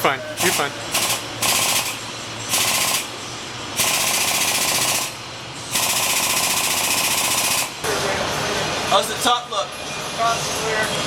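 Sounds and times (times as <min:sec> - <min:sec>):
powered rig motor rattling buzz: 0:00.4 - 0:07.8.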